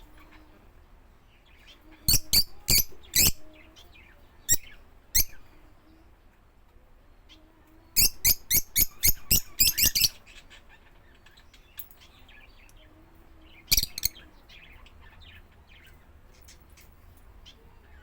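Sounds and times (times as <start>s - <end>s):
bird chirping: 1.3s - 5.6s, 8.0s - 12.9s, 13.5s - 18.0s.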